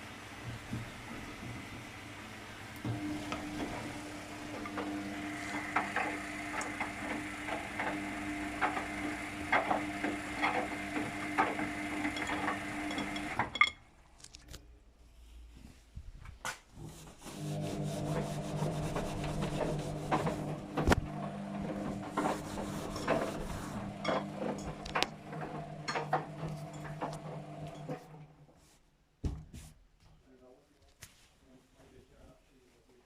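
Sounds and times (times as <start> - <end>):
washing machine drum humming: 0.0 - 13.8, 17.4 - 28.1.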